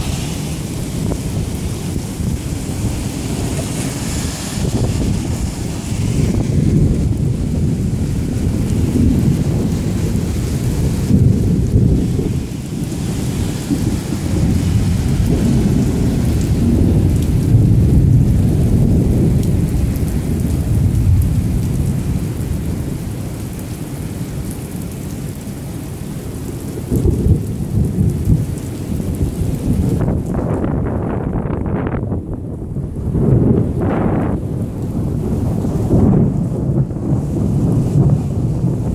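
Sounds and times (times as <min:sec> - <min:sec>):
heavy rain: 0:00.0 - 0:38.9
thunder rumbling: 0:00.0 - 0:38.9.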